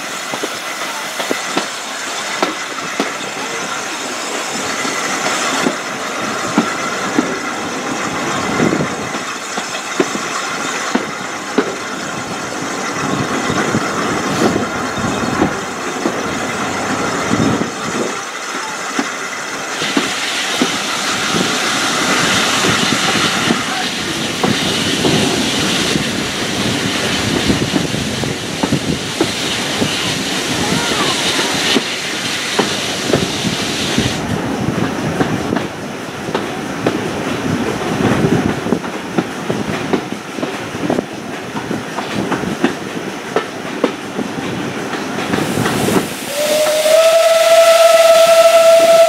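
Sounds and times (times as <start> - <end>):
train rolling rumble: 0.0 - 49.0
wheels clicking on rails: 0.0 - 49.0
loud hiss: 19.1 - 34.2, 45.4 - 49.0.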